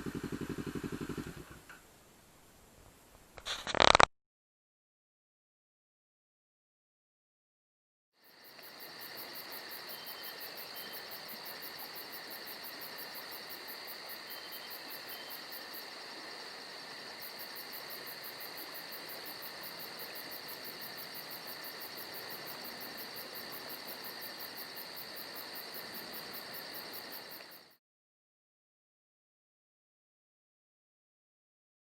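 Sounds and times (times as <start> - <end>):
insect pulsing chirp: 8.2 - 27.8
insects buzzing: 8.2 - 27.8.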